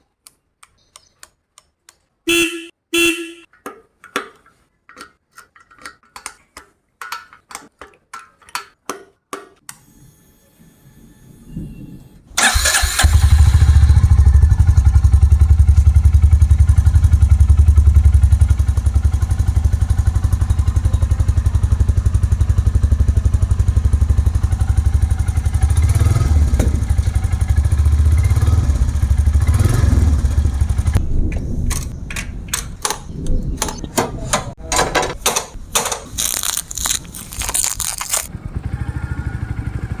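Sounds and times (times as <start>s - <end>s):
motorcycle engine thumping: 12.4s - 36.3s.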